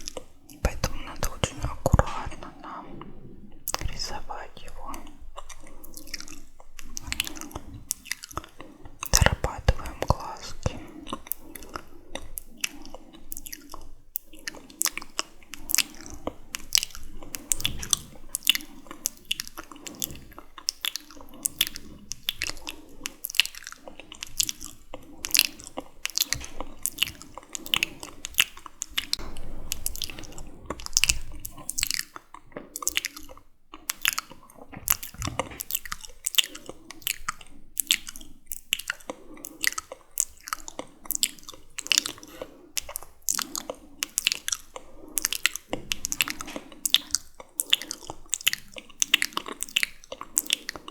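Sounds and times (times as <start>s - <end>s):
lip and tongue clicks: 0.0s - 50.9s.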